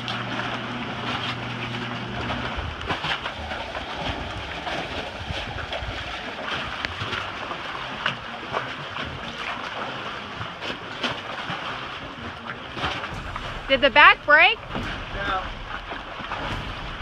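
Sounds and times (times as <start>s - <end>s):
water sloshing around boat: 0.0s - 17.0s
wind on microphone: 2.0s - 7.1s.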